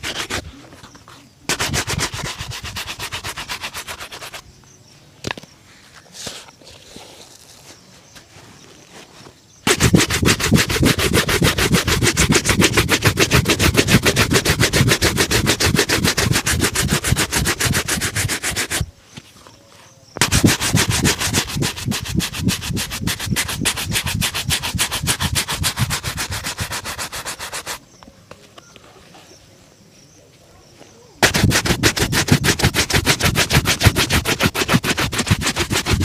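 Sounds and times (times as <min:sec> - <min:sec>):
brush scrubbing leather shoe: 0:00.0 - 0:00.5, 0:01.5 - 0:04.4, 0:09.7 - 0:18.9, 0:20.2 - 0:27.8, 0:31.2 - 0:36.0.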